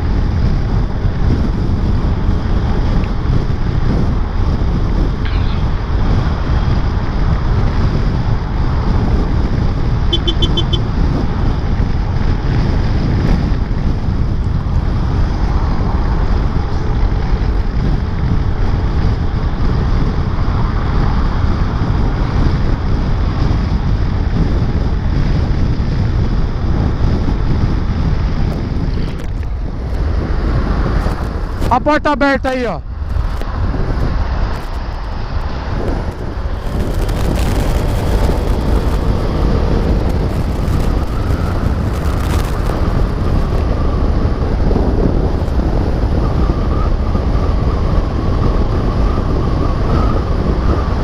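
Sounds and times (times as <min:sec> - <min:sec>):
road noise: 0:00.0 - 0:51.0
wind buffeting microphone: 0:00.0 - 0:51.0
quick high beeps: 0:10.1 - 0:10.8.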